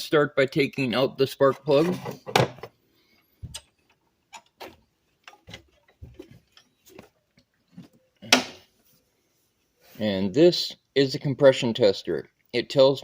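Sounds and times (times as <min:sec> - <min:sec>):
hand tools clicking and knocking: 0:03.5 - 0:07.1.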